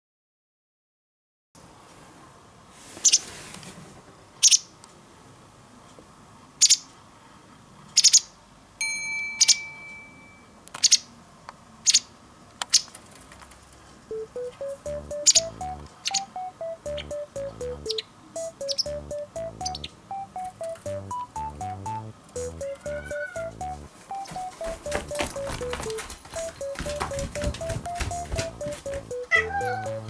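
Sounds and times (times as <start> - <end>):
held pitched tone: 14.1 - 30.0
light background music: 14.1 - 30.0.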